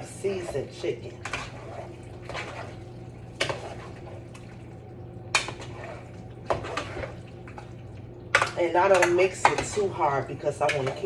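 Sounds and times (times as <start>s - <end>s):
spoon scraping a pot: 0.0s - 2.8s, 5.4s - 7.2s, 8.8s - 11.0s.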